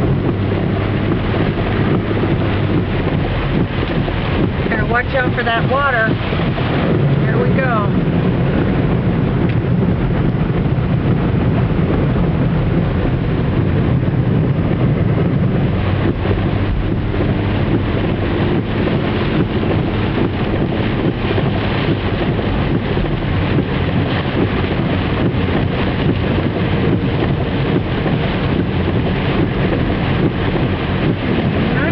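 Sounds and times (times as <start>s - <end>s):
car engine hum: 0.0s - 31.9s
rain and spray knocking on car: 0.0s - 31.9s
water rushing and splashing: 0.0s - 31.9s.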